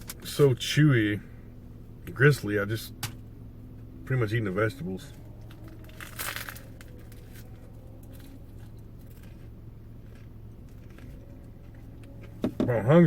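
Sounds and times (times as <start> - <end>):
steady low hum: 0.0 - 13.0
crunchy crackle of bread: 5.2 - 12.3.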